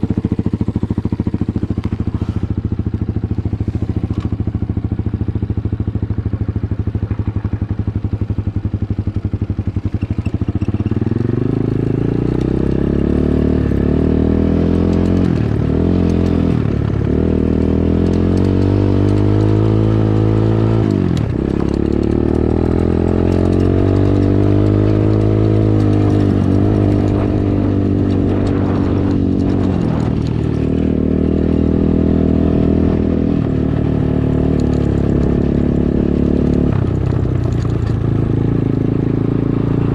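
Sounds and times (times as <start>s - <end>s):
dirt bike engine revving: 9.8s - 39.9s.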